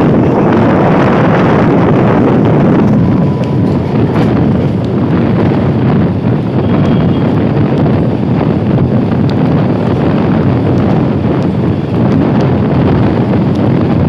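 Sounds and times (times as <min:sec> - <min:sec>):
train running rumble: 0:00.0 - 0:14.0
wind buffeting microphone: 0:00.0 - 0:14.0.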